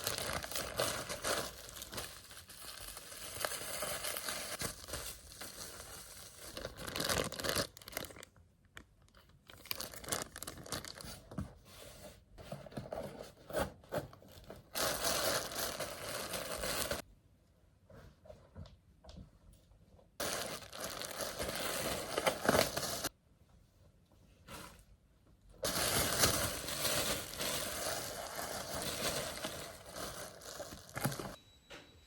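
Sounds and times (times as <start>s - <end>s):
packaging crinkling and tearing: 0.0s - 8.4s, 9.0s - 11.2s, 14.7s - 17.0s, 20.2s - 23.1s, 25.6s - 31.4s.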